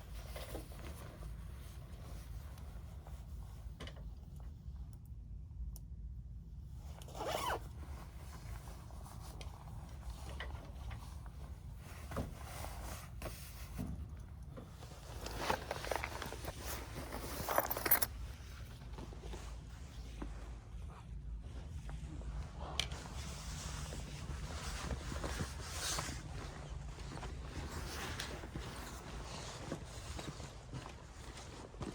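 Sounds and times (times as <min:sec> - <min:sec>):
clothing rustling: 0:00.0 - 0:03.8, 0:06.9 - 0:31.9
zippers being pulled: 0:07.0 - 0:07.6, 0:15.2 - 0:18.1.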